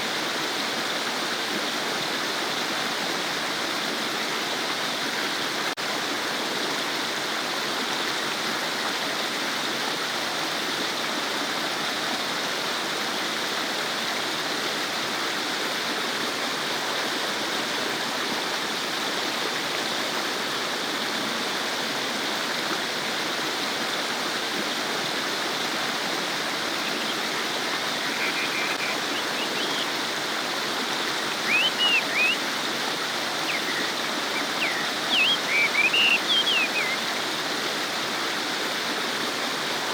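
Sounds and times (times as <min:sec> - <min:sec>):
stream babbling over stones: 0:00.1 - 0:39.9
short high chirps: 0:31.5 - 0:32.4, 0:33.5 - 0:37.0.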